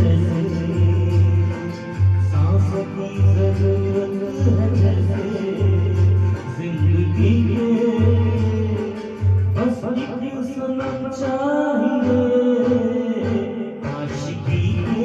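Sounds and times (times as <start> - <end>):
pulsing bass beat: 0.0 - 9.7
person singing: 0.0 - 15.0.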